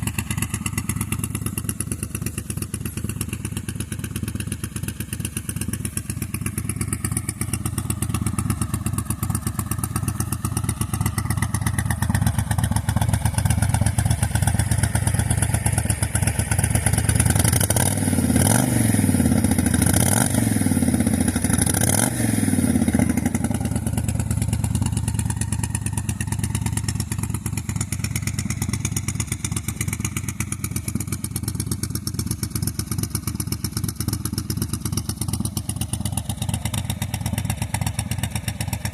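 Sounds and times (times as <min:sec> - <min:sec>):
motorcycle engine idling: 0:00.0 - 0:38.9
motorcycle engine revving: 0:00.0 - 0:38.9.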